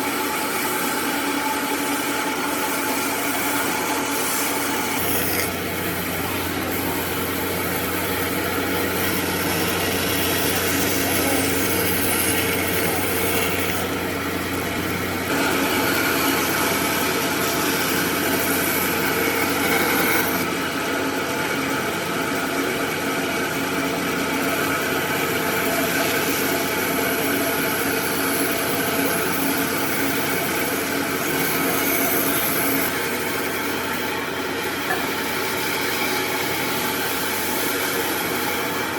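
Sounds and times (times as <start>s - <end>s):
power tool grinding wood: 1.8s - 20.5s.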